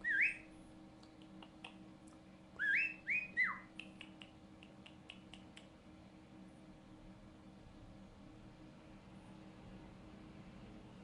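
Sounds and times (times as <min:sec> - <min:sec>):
cockatiel whistling: 0:00.0 - 0:00.5, 0:02.6 - 0:03.8
soft bird chirps and clicks: 0:01.0 - 0:05.7.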